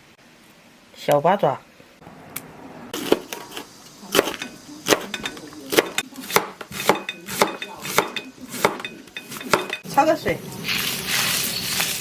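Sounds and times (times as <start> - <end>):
knife striking cutting board: 3.0 - 9.8.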